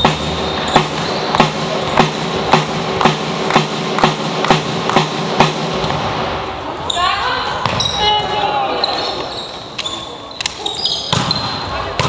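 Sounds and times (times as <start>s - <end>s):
rhythmic drum beat: 0.0s - 6.8s
hum of sports hall: 0.0s - 12.0s.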